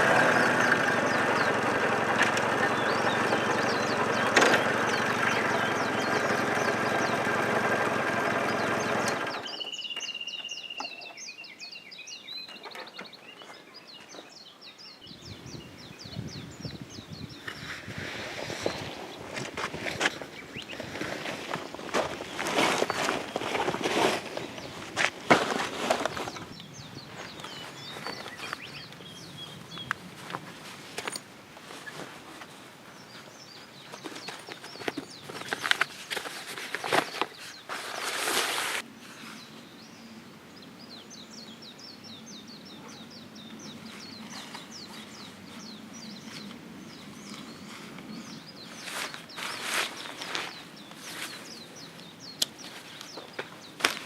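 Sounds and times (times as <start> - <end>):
bird trill: 0.0 - 13.3
songbirds chirping: 0.0 - 54.0.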